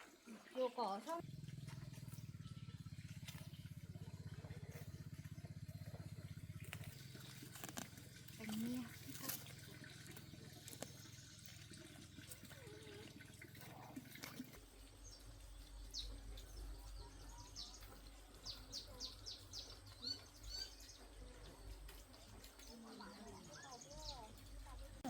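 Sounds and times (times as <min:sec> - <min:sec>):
faint bird chirps: 0:15.0 - 0:24.8.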